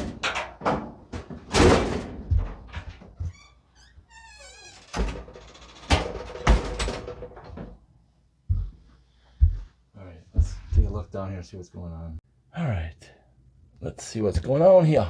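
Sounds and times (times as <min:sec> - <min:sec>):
sheet-metal panel thunks and knocks: 0:00.0 - 0:03.2, 0:05.9 - 0:07.7.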